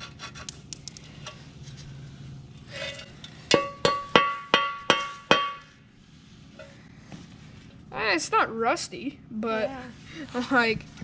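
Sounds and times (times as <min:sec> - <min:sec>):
metal tapped against metal: 0:03.5 - 0:05.7.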